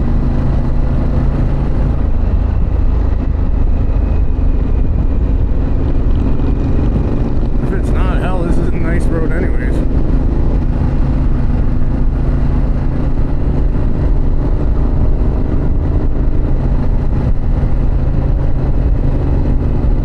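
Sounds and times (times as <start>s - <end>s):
motorcycle engine and exhaust: 0.0s - 20.0s
road noise: 0.0s - 20.0s
wind noise: 0.0s - 20.0s.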